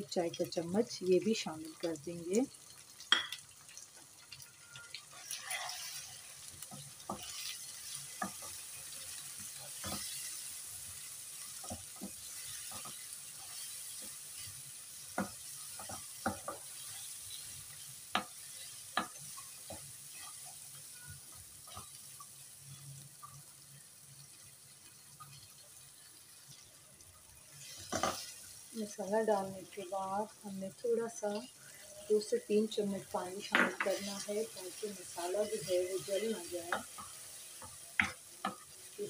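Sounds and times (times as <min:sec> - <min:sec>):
masala sizzling in oil: 0:00.0 - 0:39.0
wooden spatula scraping pan: 0:05.1 - 0:06.1.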